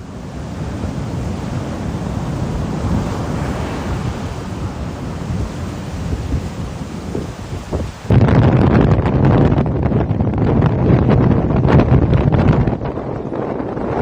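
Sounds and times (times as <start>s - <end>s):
breaking waves: 0.0s - 8.3s
wind rumbling on microphone: 0.0s - 14.0s.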